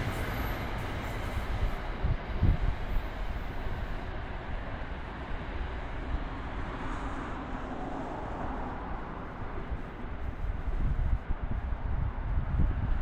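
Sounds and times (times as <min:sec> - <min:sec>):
train running past on rails: 0:00.0 - 0:13.0.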